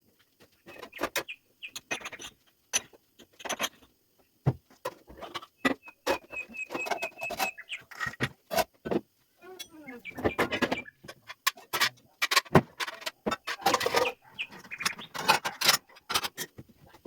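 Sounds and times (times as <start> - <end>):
clicks and knocks of handling: 9.6 - 17.0.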